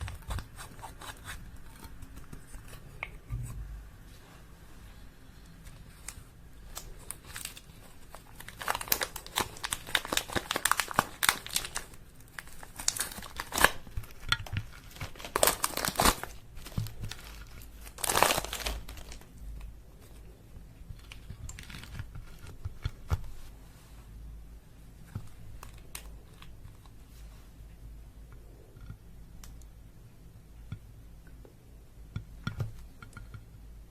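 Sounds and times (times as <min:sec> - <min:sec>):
slime crackling and popping: 0:08.3 - 0:19.2.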